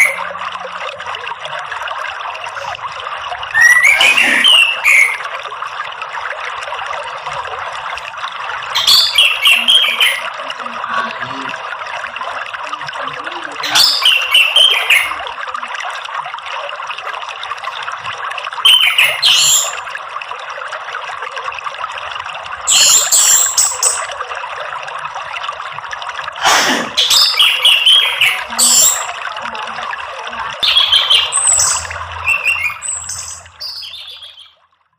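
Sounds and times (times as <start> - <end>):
rushing water: 0.0 - 34.8.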